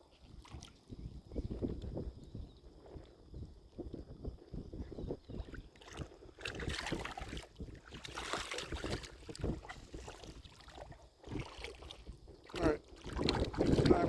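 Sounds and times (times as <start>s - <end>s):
seawater sloshing and splashing: 0.0s - 1.0s, 5.3s - 14.0s
wind buffeting microphone: 0.0s - 14.0s.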